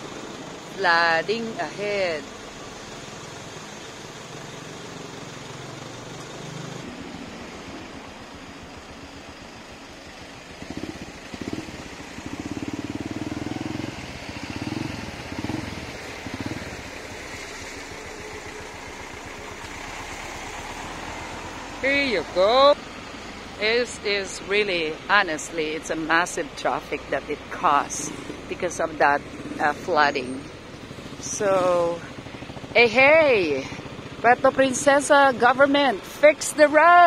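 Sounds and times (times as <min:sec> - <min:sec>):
road traffic: 0:00.0 - 0:37.0
nearby engine surging: 0:10.1 - 0:37.0.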